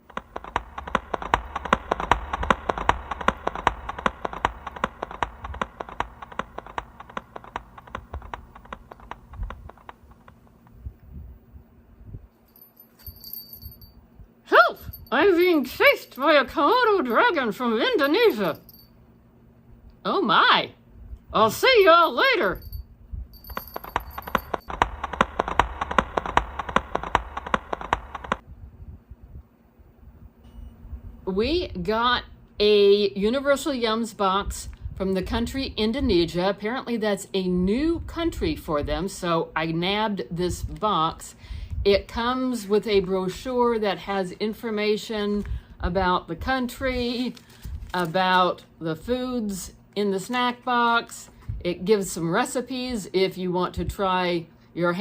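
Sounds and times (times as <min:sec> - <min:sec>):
running footsteps: 0:00.0 - 0:10.7, 0:23.4 - 0:28.4.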